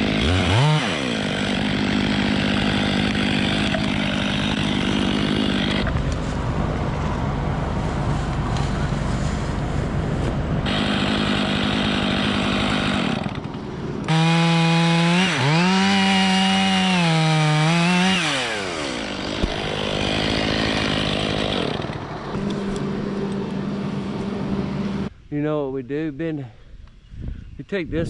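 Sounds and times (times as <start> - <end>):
chainsaw cutting wood: 0.0 - 6.1, 10.6 - 23.3
steady engine hum: 0.0 - 25.2.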